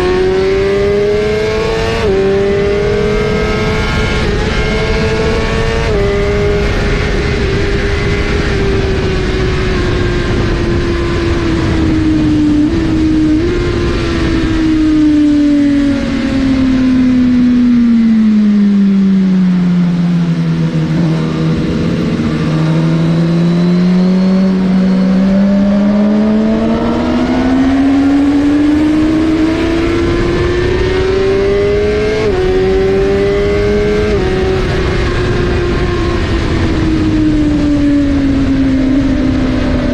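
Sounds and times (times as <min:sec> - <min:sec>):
motorcycle engine at speed: 0:00.0 - 0:39.9
steady rushing noise: 0:19.4 - 0:39.9.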